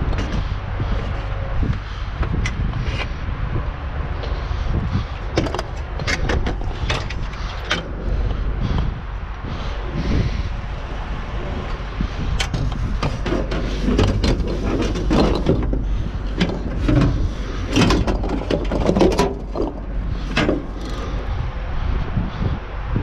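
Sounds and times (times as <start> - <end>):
scrap metal knocks and clanks: 0.0 - 3.1, 4.2 - 8.9, 11.7 - 21.4
wind buffeting microphone: 0.0 - 23.0.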